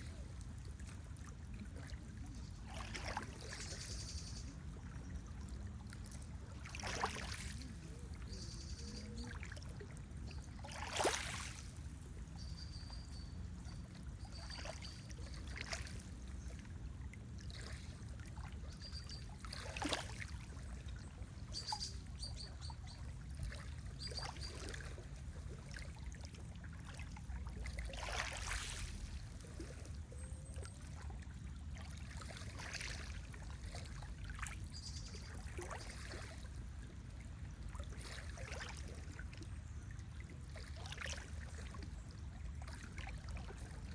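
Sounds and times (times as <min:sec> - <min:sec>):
lake water lapping: 0:00.0 - 0:43.9.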